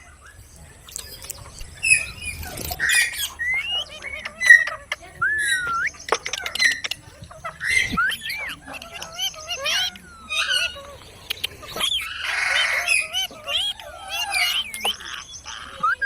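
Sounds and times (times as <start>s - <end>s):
gliding whistled notes: 0.9s - 6.9s
parrot squawking: 1.0s - 16.0s.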